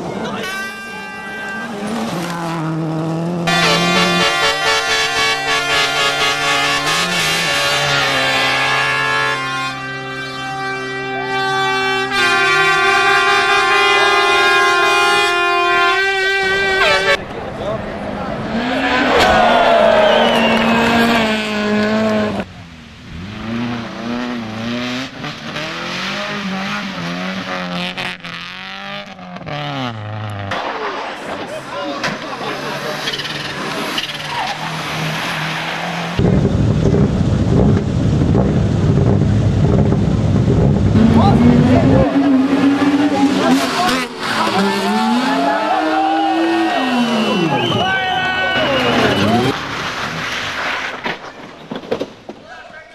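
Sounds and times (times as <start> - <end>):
brass-like horn chords: 0.2 - 17.2
rally car engine running hard: 36.2 - 47.7.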